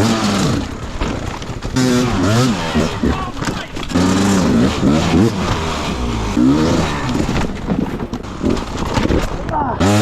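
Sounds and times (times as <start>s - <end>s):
dirt bike engine revving: 0.0s - 9.0s, 9.7s - 10.0s.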